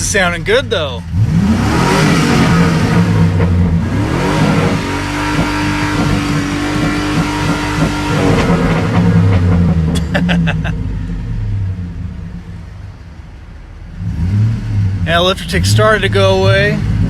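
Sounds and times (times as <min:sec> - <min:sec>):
engine lifter ticking: 0:00.0 - 0:10.6
car engine revving: 0:00.0 - 0:17.0.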